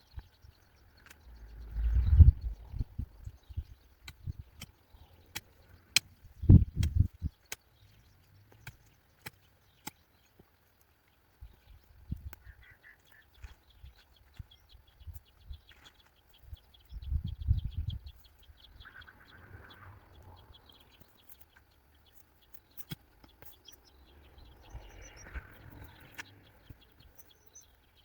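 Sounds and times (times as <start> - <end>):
birds chirping: 0.0 - 28.0
low thuds and rumbling: 1.5 - 4.5.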